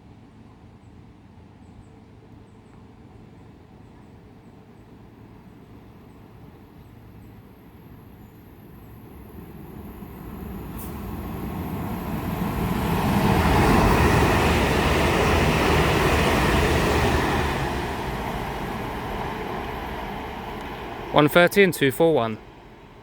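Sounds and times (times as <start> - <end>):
electric trains passing at speed: 5.2 - 23.0.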